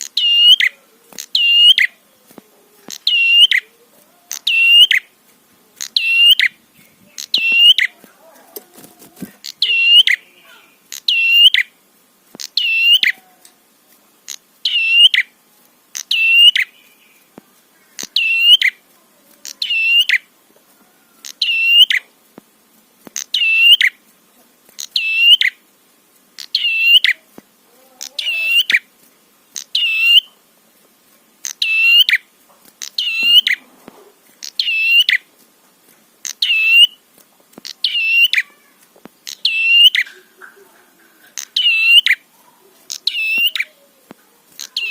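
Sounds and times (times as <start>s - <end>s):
bird singing sharp calls: 0.0s - 2.1s, 2.8s - 5.2s, 5.8s - 8.0s, 9.4s - 11.8s, 12.4s - 13.2s, 14.3s - 15.4s, 16.0s - 17.3s, 17.9s - 18.8s, 19.5s - 20.3s, 21.2s - 22.1s, 23.2s - 24.0s, 24.8s - 25.6s, 26.4s - 27.3s, 28.1s - 28.9s, 29.6s - 30.4s, 31.4s - 33.6s, 34.4s - 35.3s, 36.2s - 37.0s, 37.6s - 38.6s, 39.2s - 40.3s, 41.3s - 43.8s, 44.5s - 44.9s.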